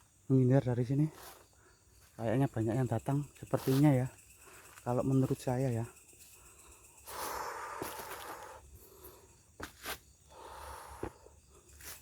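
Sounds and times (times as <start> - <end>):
footsteps rustling through undergrowth: 3.3 - 5.0, 7.1 - 8.6, 9.6 - 10.2, 11.7 - 12.0.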